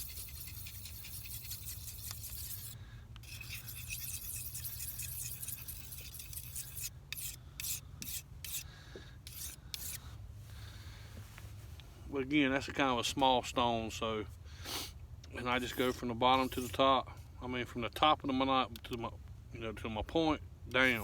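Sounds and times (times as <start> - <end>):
knife scraping on whetstone: 0.0 - 10.0, 15.4 - 16.8.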